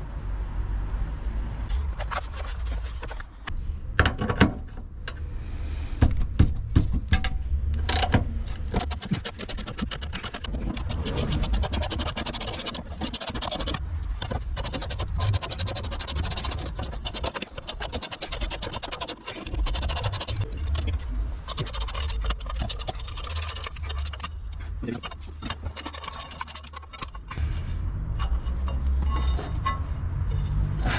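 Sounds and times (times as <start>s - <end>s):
metal tools scraping car parts: 7.0s - 27.4s, 28.1s - 30.7s
low rumble: 19.7s - 30.9s.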